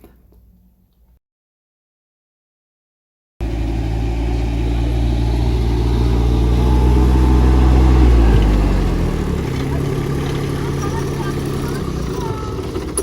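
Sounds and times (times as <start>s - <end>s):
engine running loudly: 3.4s - 13.0s.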